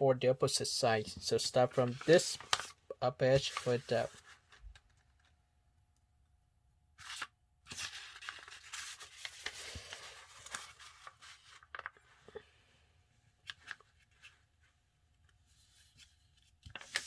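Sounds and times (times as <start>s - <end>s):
paper rustling and sliding: 1.2s - 4.9s, 7.0s - 12.2s, 13.4s - 17.0s
paper crinkling: 1.4s - 5.3s, 7.0s - 12.4s, 15.9s - 17.0s.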